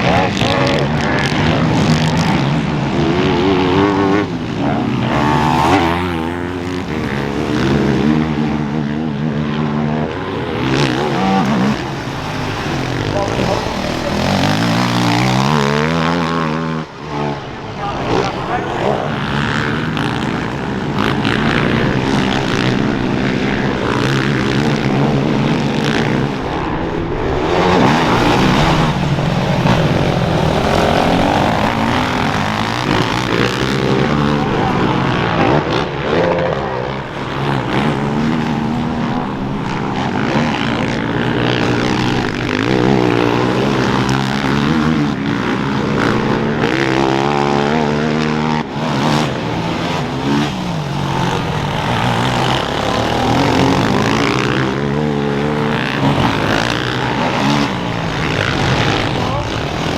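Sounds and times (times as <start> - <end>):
motocross engines revving: 0.0 - 59.9.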